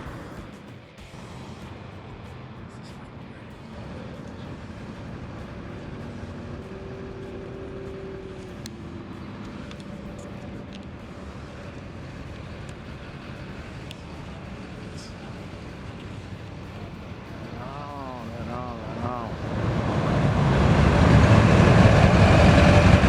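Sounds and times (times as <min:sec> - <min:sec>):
tyre noise on road: 0:00.0 - 0:23.0
vehicle engines running: 0:00.0 - 0:23.0.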